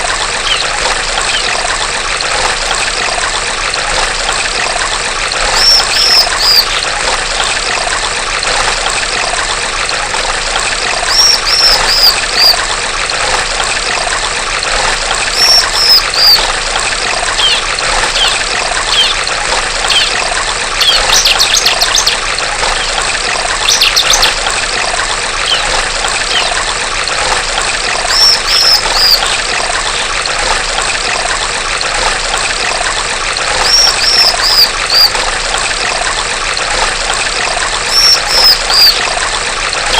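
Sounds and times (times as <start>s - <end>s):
trickling stream water: 0.0s - 39.9s
bird calling high notes: 0.4s - 1.6s, 5.6s - 6.8s, 11.1s - 12.6s, 15.3s - 16.4s, 17.4s - 19.2s, 25.4s - 26.6s, 28.1s - 29.4s, 33.6s - 35.2s, 37.9s - 39.1s
bird rattling trills: 0.4s - 1.6s, 5.5s - 6.8s, 11.0s - 12.6s, 15.3s - 16.5s, 17.3s - 24.4s, 25.4s - 26.6s, 28.1s - 29.4s, 33.5s - 35.2s, 37.8s - 39.1s.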